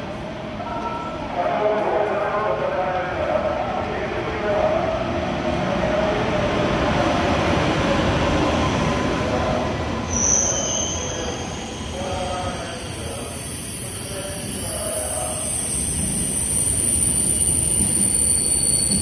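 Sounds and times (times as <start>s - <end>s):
high-speed train rumbling: 0.0s - 19.0s
high-pitched squeal: 10.1s - 19.0s.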